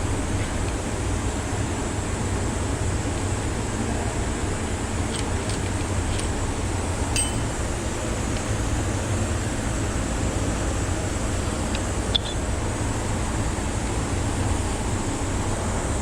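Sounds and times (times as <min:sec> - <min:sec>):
low rumbling background noise: 0:00.0 - 0:16.0
light metallic clinks: 0:07.1 - 0:08.5.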